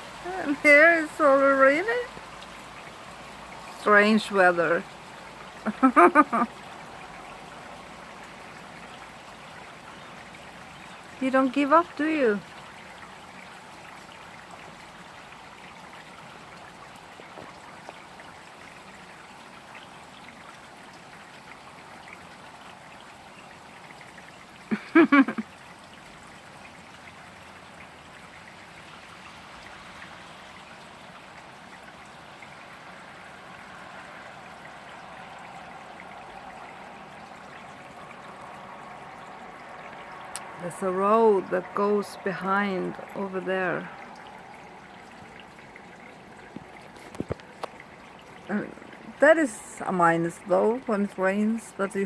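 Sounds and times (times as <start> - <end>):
rain hissing: 0.0 - 7.1, 24.7 - 25.4
car tyres on wet road: 0.0 - 49.5
water trickling and dripping: 0.0 - 52.0.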